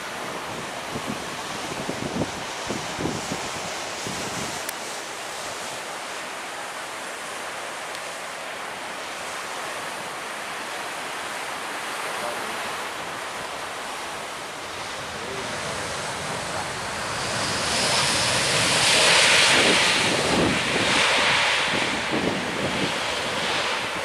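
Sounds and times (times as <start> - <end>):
surf breaking on beach: 0.0 - 24.0.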